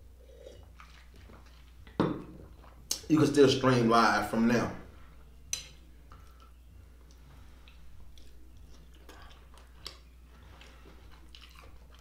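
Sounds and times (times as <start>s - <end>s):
steady low hum: 0.0s - 12.0s
man chewing with wet smacks: 0.5s - 3.1s, 5.4s - 12.0s.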